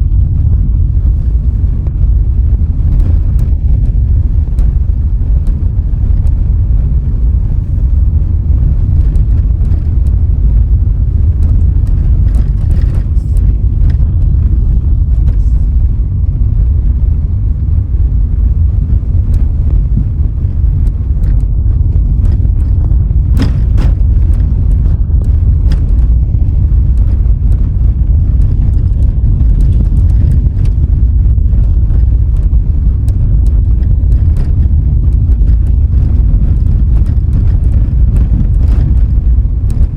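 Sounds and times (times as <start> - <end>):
car driving on road: 0.0 - 39.9.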